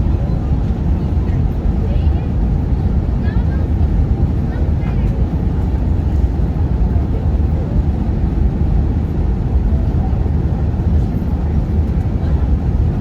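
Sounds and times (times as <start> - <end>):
airliner cabin engine roar: 0.0 - 13.0.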